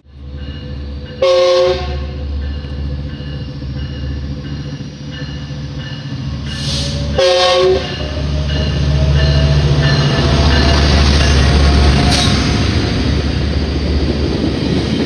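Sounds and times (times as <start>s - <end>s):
train rumbling: 0.0s - 15.0s
train horn blast: 1.2s - 2.2s, 6.5s - 8.2s.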